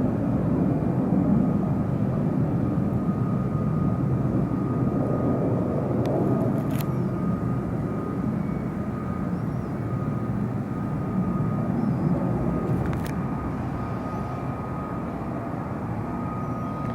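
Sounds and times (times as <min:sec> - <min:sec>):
fighter jet engines rumbling: 0:00.0 - 0:16.9.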